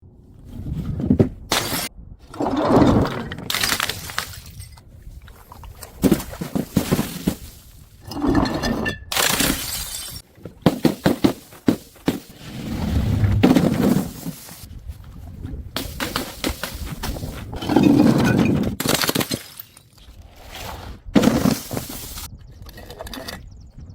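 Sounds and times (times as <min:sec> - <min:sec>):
glass bottles smashing: 0:08.1 - 0:10.2, 0:17.6 - 0:20.0
glass shards clattering: 0:08.1 - 0:10.2, 0:17.6 - 0:20.0.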